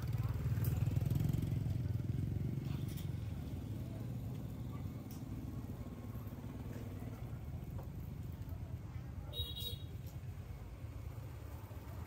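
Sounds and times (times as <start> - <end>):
engine with low pulsing: 0.0 - 9.2.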